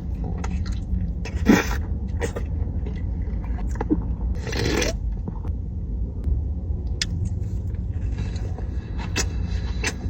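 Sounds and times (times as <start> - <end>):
steady low rumble: 0.0 - 10.0
person chewing: 7.0 - 10.0.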